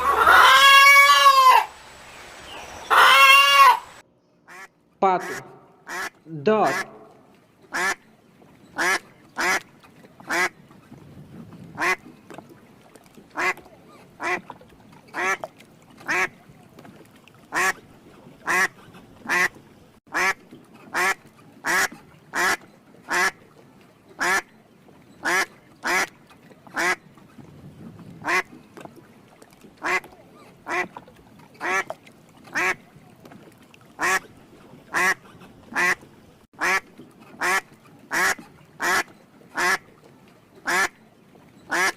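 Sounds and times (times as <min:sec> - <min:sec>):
duck quacking: 0:00.0 - 0:01.7, 0:02.5 - 0:08.0, 0:08.8 - 0:09.6, 0:10.3 - 0:10.5, 0:11.8 - 0:12.0, 0:13.4 - 0:13.6, 0:14.2 - 0:14.5, 0:15.1 - 0:15.4, 0:16.1 - 0:16.3, 0:17.5 - 0:17.8, 0:18.4 - 0:18.7, 0:19.3 - 0:19.5, 0:20.1 - 0:23.4, 0:24.2 - 0:24.5, 0:25.2 - 0:26.1, 0:28.2 - 0:28.5, 0:29.8 - 0:30.9, 0:31.6 - 0:31.9, 0:32.5 - 0:32.8, 0:34.0 - 0:34.2, 0:34.9 - 0:36.0, 0:36.6 - 0:36.8, 0:37.4 - 0:39.8, 0:40.6 - 0:40.9, 0:41.7 - 0:41.9.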